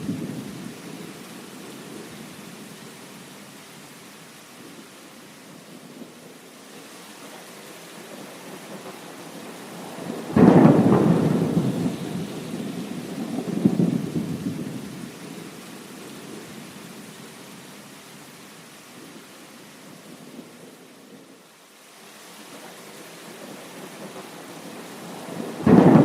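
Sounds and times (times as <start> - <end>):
steady rain: 0.0 - 26.0
thunder rumbling: 8.0 - 15.6, 23.4 - 26.0.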